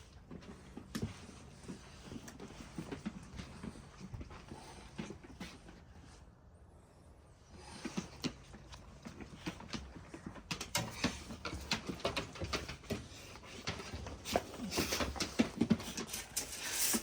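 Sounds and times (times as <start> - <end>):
dog claws clicking and tapping: 7.8 - 17.0.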